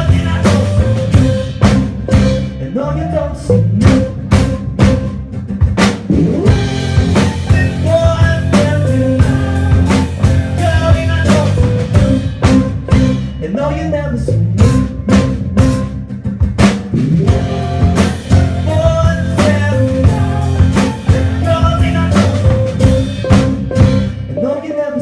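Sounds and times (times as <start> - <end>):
person singing: 0.0 - 1.6, 2.4 - 4.4, 6.2 - 14.8, 17.1 - 25.0
drum hits: 0.0 - 2.6, 3.8 - 13.5, 14.6 - 24.3
live rock band playing: 0.0 - 25.0.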